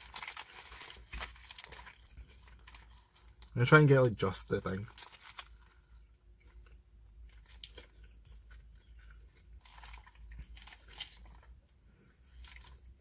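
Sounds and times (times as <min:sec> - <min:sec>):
faint biting and chewing sandwich: 0:00.0 - 0:03.5, 0:04.8 - 0:13.0.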